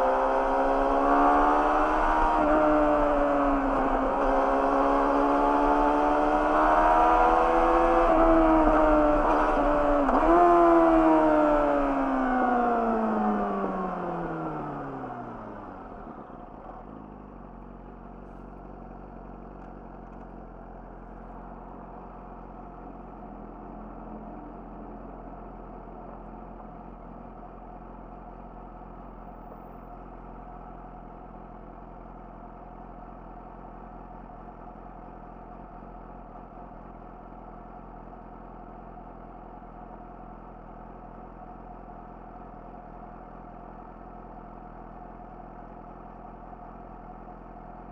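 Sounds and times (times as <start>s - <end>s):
motorcycle engine idling: 15.6s - 47.9s.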